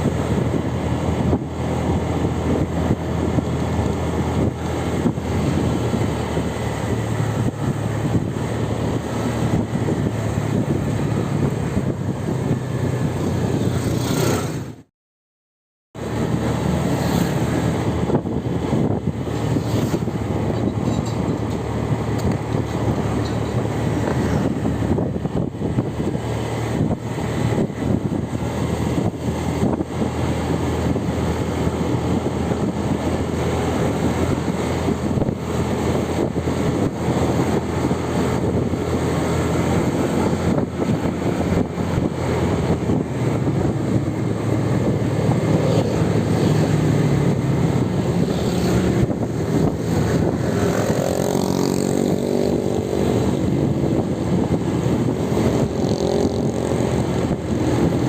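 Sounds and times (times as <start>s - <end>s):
vehicle engine and road noise: 0.0s - 14.9s, 16.0s - 58.0s
engine accelerating: 16.0s - 58.0s.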